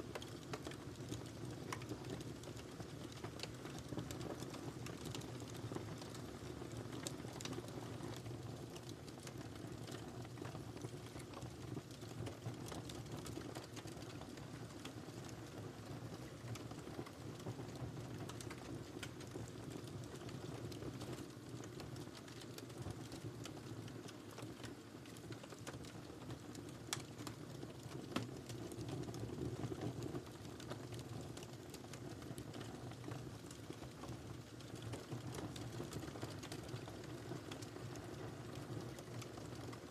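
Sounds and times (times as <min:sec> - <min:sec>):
fire popping and snapping: 0:00.0 - 0:39.9.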